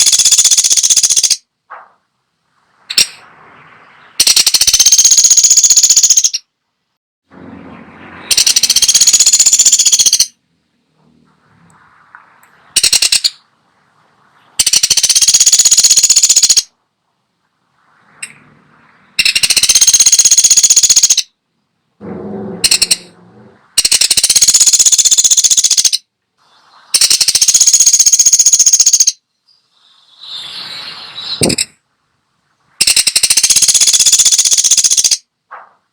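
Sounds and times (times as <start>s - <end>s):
woodpecker rattling trills: 0.0s - 1.4s, 3.9s - 6.5s, 8.3s - 10.4s, 12.8s - 13.4s, 14.6s - 16.7s, 19.2s - 21.3s, 22.1s - 26.0s, 27.0s - 29.2s, 32.8s - 35.2s.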